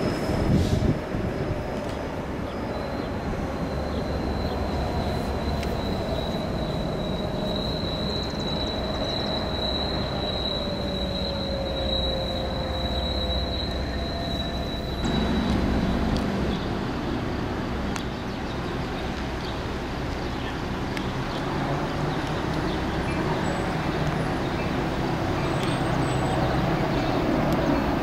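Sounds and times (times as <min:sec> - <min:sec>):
train wheel squeal: 0:00.0 - 0:17.5
approaching train deep rumble: 0:00.0 - 0:28.0
train rumble: 0:00.0 - 0:28.0.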